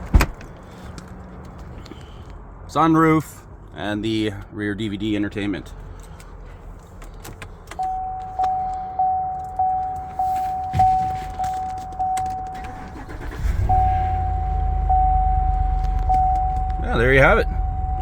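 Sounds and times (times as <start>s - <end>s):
car engine starting and idling: 5.6s - 18.0s
vehicle warning chime: 7.8s - 18.0s.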